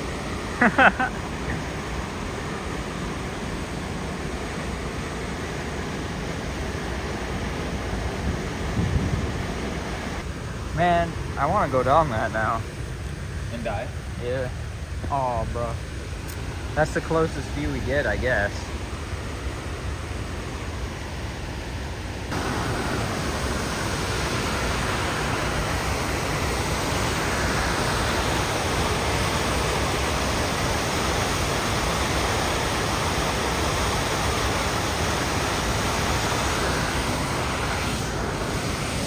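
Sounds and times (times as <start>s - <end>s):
waterfall rushing: 22.2s - 39.0s.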